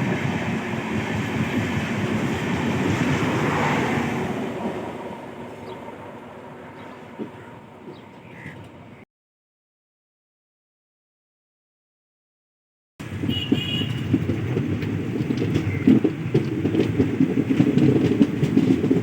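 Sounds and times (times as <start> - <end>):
train rumbling past: 0.0 - 9.0, 13.0 - 19.0
train wheel thumps on rails: 13.2 - 19.0.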